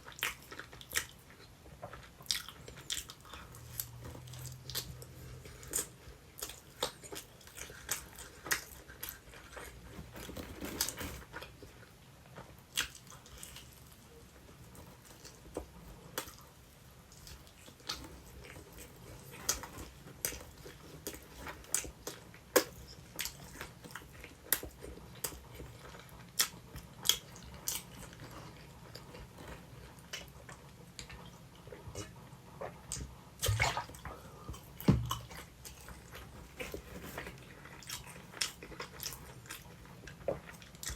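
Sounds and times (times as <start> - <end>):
close-up chewing and bites: 0.0 - 40.9.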